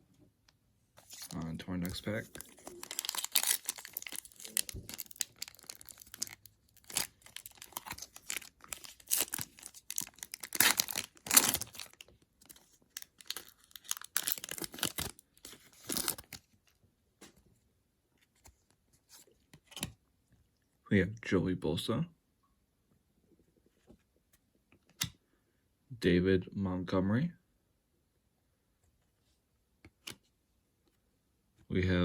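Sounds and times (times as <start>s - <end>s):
wrapper tearing and crinkling: 1.0s - 16.4s.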